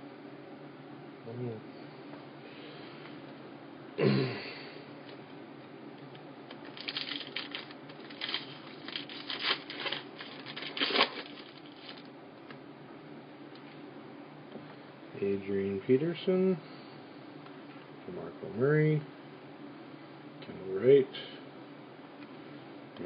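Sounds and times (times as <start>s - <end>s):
low steady hum: 0.0s - 23.0s
cards clicking and crinkling: 6.5s - 12.1s.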